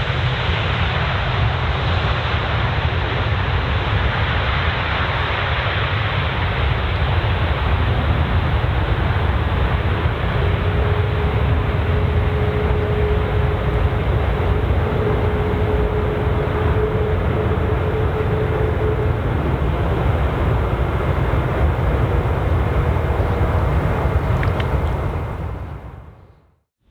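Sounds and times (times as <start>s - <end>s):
jet engines rumbling: 0.1s - 26.4s
faint steady whine: 6.0s - 26.4s.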